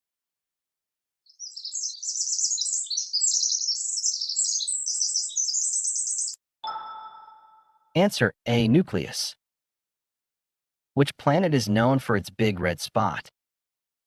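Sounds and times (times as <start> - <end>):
small birds twittering: 1.3 - 6.4
bell-like ding: 6.6 - 7.8.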